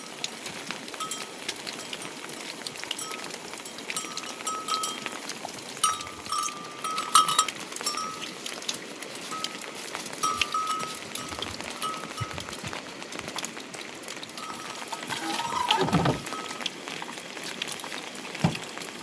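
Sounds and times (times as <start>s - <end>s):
small metal bell ringing: 3.0s - 5.2s, 5.8s - 8.3s, 10.2s - 12.6s.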